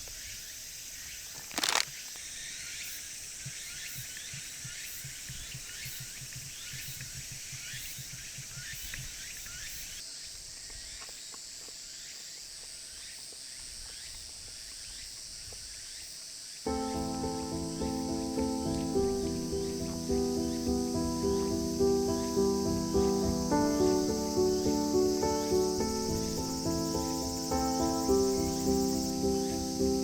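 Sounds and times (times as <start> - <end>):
high-pitched insect chorus: 0.0 - 30.0
faint chirps: 16.7 - 30.0.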